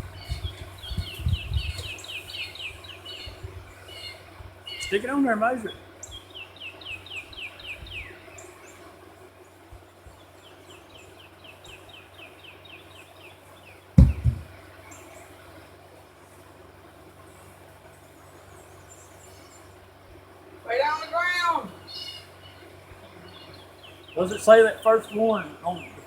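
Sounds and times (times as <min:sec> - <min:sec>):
songbird trilling: 0:00.0 - 0:08.9, 0:10.2 - 0:14.2, 0:20.7 - 0:26.0
loud low thump: 0:14.0 - 0:14.6.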